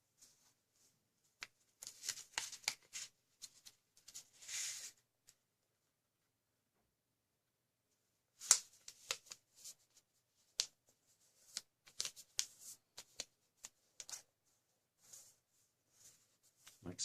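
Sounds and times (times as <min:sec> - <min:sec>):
paper being folded: 0:01.4 - 0:05.0, 0:08.4 - 0:14.3.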